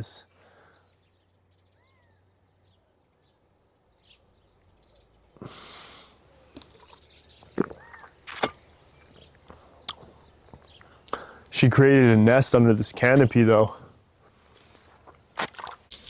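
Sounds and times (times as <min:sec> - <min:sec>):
faint bird chirps: 0:00.6 - 0:05.5, 0:06.2 - 0:11.0.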